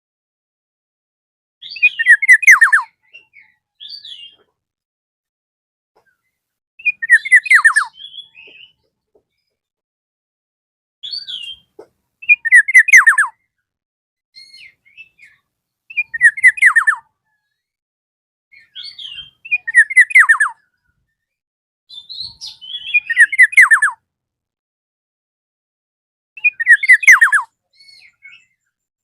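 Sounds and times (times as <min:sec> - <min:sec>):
bird singing falling whistled notes: 0:01.6 - 0:04.5, 0:06.8 - 0:08.8, 0:11.0 - 0:13.4, 0:14.4 - 0:17.0, 0:18.6 - 0:20.6, 0:21.9 - 0:24.0, 0:26.4 - 0:28.6.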